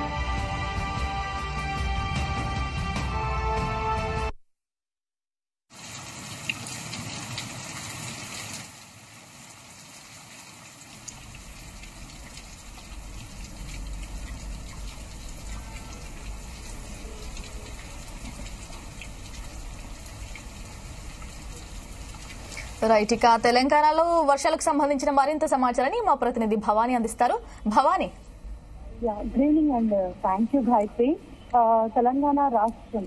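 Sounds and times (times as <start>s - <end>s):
rain falling: 5.7s - 24.6s.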